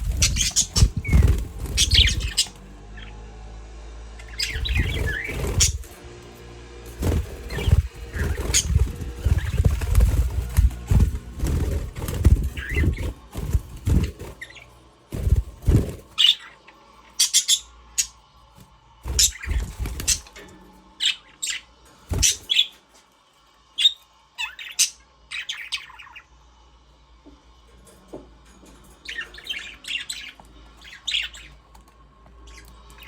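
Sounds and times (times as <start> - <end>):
budgerigars chirping: 0.0 - 3.1, 4.2 - 6.0, 7.0 - 16.6, 17.2 - 18.1.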